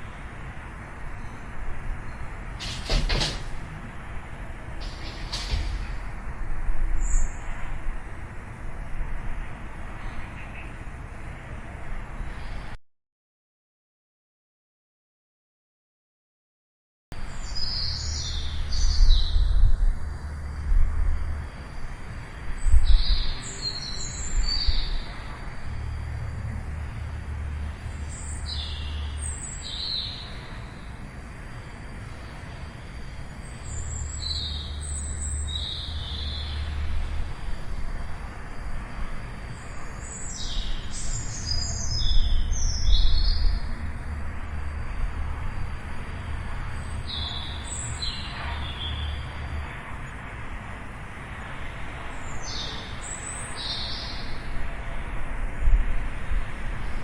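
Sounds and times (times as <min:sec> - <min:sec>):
steady low rumble: 0:00.0 - 0:10.3, 0:18.5 - 0:23.4
small birds chirping: 0:17.3 - 0:19.6, 0:27.9 - 0:31.0, 0:31.6 - 0:37.0, 0:39.4 - 0:43.7.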